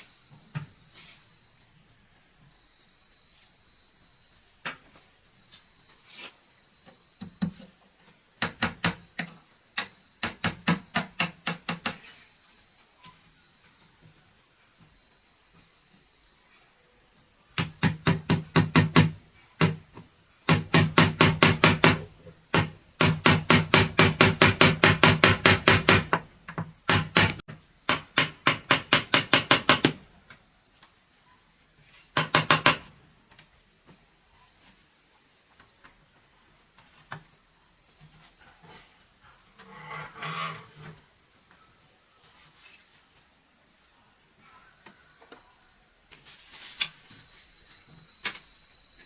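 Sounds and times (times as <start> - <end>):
insects chirring: 0.0 - 49.0
fast hammer blows on wood: 17.6 - 19.8, 20.5 - 26.2, 26.8 - 30.0.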